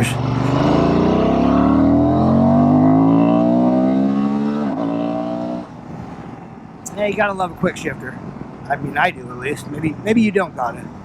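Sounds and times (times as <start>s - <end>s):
motorcycle engine revving: 0.0s - 5.7s.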